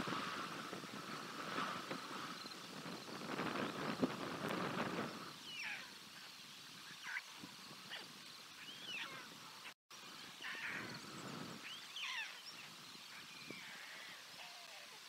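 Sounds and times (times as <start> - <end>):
light outdoor hiss: 0.0 - 15.0
bird chirping: 5.2 - 15.0.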